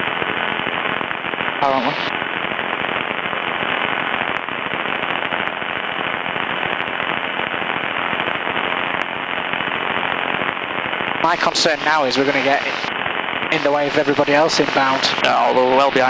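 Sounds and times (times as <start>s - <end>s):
crackling radio static: 0.0s - 16.0s.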